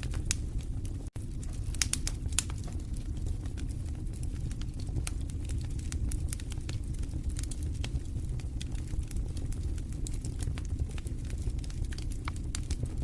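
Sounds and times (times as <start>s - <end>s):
fire crackling and popping: 0.0s - 13.0s
low rumble of flames: 0.0s - 13.0s.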